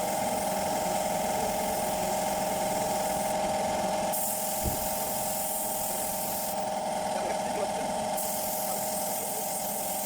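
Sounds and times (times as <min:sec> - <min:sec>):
power tool motor running: 0:00.0 - 0:10.0.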